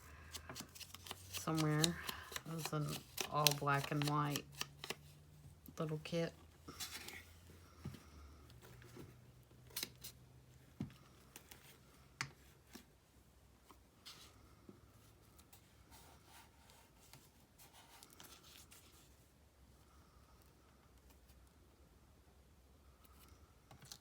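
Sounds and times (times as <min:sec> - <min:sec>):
paper snips and rustles: 0:00.6 - 0:05.0.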